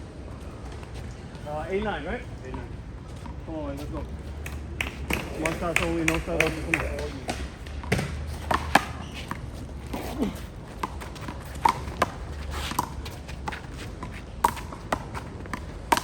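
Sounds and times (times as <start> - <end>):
handball slaps and bounces: 4.4 - 9.4, 10.8 - 16.0.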